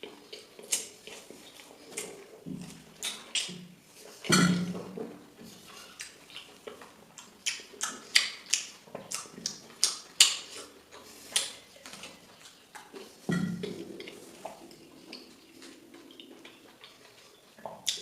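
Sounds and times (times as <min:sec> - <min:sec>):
person chewing noisily: 0:00.0 - 0:18.0.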